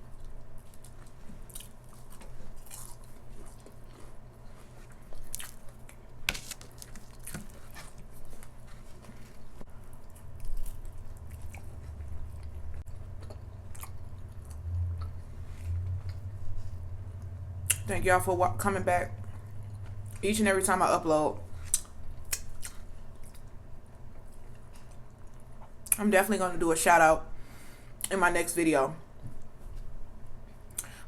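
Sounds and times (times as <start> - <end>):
person chewing food: 0.0 - 17.8, 19.2 - 20.2, 21.5 - 26.0.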